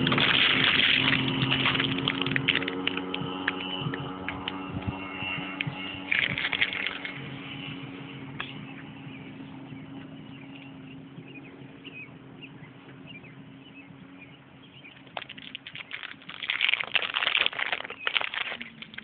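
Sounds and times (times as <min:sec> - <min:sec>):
jet ski engine running: 0:02.4 - 0:14.8.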